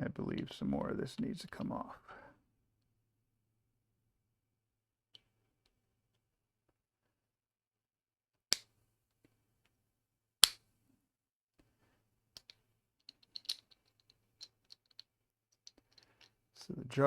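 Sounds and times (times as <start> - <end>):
plastic parts clicking and snapping: 12.4 - 16.3.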